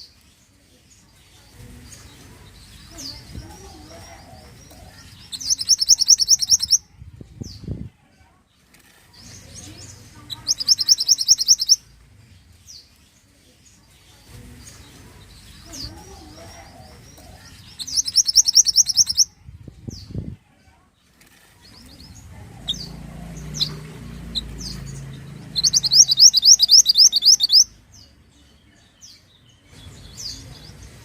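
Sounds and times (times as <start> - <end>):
songbird trilling: 5.2 - 6.8, 10.3 - 11.8, 15.5 - 19.3, 22.6 - 27.8.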